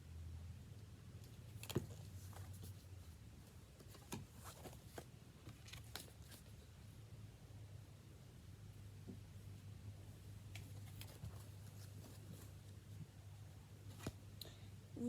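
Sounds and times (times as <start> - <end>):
book pages rustling: 1.4 - 6.6, 10.4 - 13.0.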